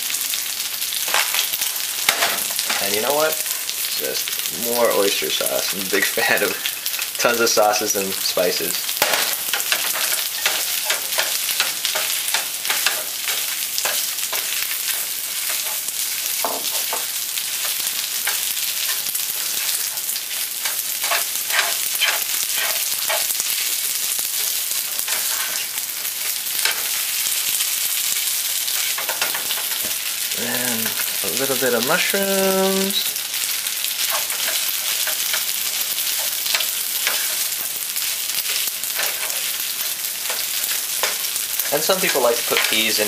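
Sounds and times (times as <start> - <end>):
food sizzling in a frying pan: 0.0 - 43.0
spatula scraping and knocking pan: 1.0 - 3.4, 8.9 - 27.1, 28.6 - 31.1, 33.4 - 43.0.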